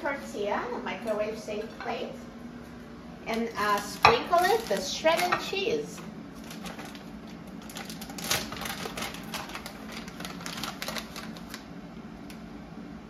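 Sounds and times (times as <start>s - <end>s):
shredded cheese sprinkling: 6.4s - 11.6s.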